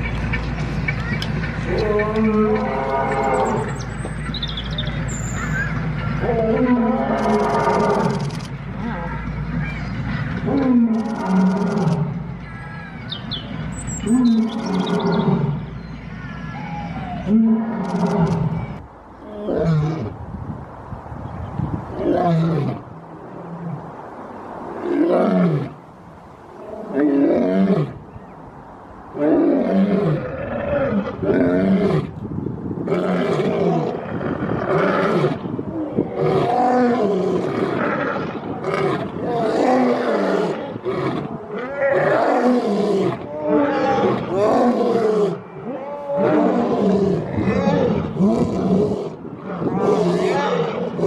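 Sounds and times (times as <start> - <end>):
lion roaring: 32.9 - 51.0.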